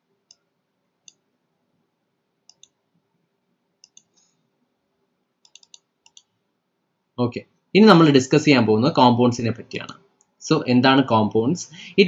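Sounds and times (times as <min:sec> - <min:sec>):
faint sharp clicks: 0:03.8 - 0:04.3.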